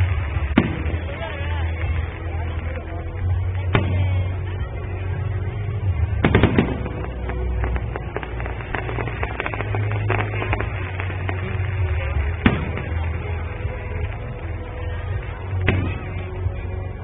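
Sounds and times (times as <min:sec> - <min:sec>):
fireworks bursting and crackling: 0:00.0 - 0:17.0
music: 0:00.0 - 0:17.0
loud firework bang: 0:00.5 - 0:01.3, 0:06.2 - 0:13.1, 0:15.6 - 0:16.3.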